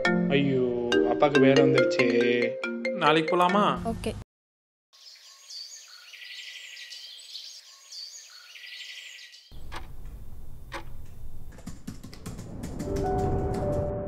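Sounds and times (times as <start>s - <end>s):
bird chirping: 5.0s - 11.5s
sharp clicks: 9.5s - 13.7s.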